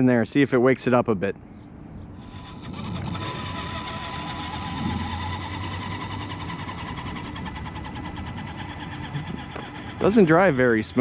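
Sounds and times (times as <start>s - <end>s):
electric motor whining: 2.2s - 11.0s.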